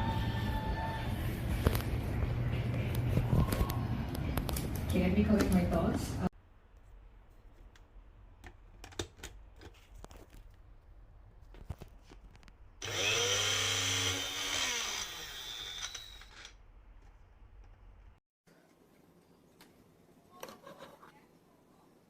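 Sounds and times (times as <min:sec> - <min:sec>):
blender motor spinning: 0:12.8 - 0:16.5.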